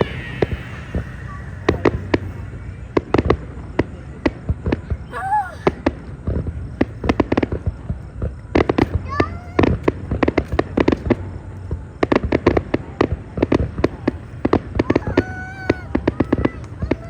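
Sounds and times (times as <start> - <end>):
fireworks bangs: 0.0 - 11.4
low background rumble: 0.0 - 17.0.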